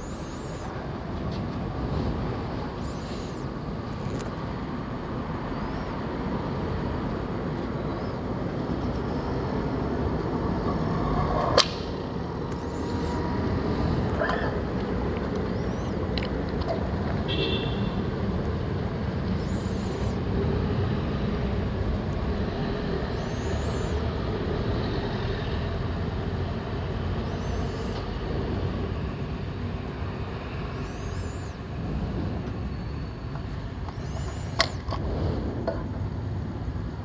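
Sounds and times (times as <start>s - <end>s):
faint high chirp: 0.0s - 0.8s, 5.5s - 6.0s, 15.5s - 16.0s, 19.4s - 20.2s, 23.1s - 24.0s, 27.2s - 28.1s, 30.5s - 31.6s, 33.9s - 34.8s
vehicle and road noise: 0.0s - 37.0s.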